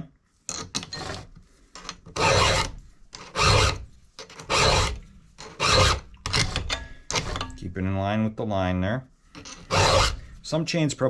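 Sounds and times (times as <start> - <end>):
file rasping on chainsaw chain: 2.1 - 3.8, 4.4 - 7.5, 9.6 - 10.3.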